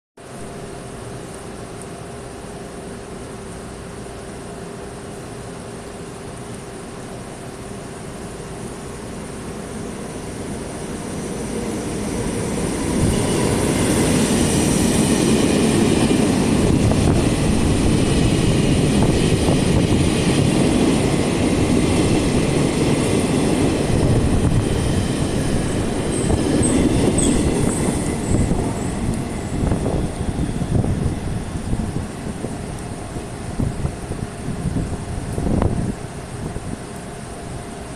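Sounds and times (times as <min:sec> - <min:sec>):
freight train rumbling on rails: 0:00.2 - 0:37.9
train wheels squealing: 0:11.1 - 0:16.3, 0:24.6 - 0:31.3.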